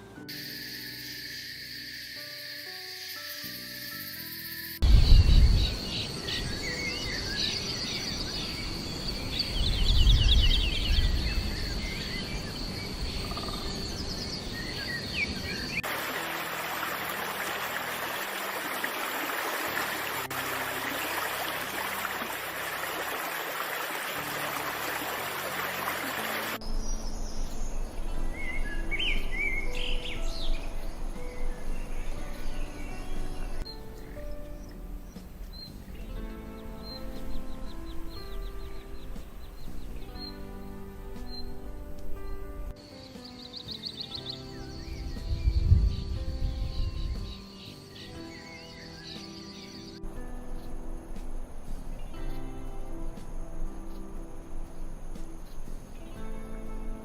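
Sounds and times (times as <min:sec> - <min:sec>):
even hiss: 0:00.0 - 0:57.0
high-pitched insect drone: 0:00.2 - 0:05.1
birds chirping: 0:04.4 - 0:53.1
low rumbles: 0:04.8 - 0:06.6.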